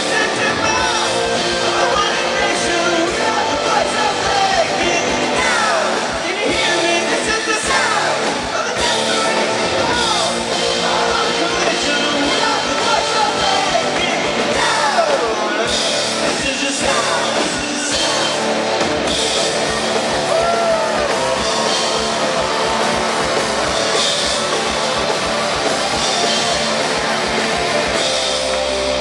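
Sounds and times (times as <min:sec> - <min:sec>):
person singing: 0:00.0 - 0:18.8
rock band playing live: 0:00.0 - 0:29.0.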